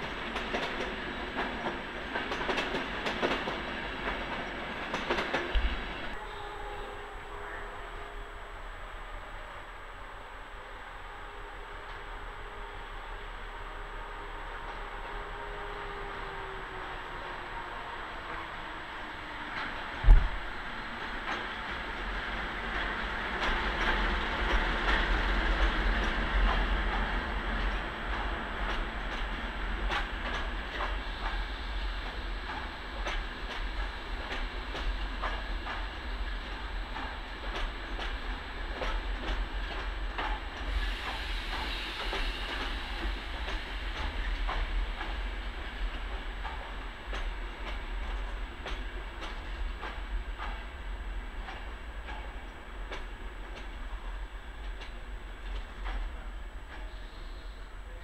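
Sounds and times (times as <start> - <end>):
train coaches rumbling: 0.0 - 7.5, 11.2 - 58.0
diesel locomotive passing: 0.0 - 58.0
wheels clicking over rail joints: 32.0 - 40.7, 43.4 - 57.0.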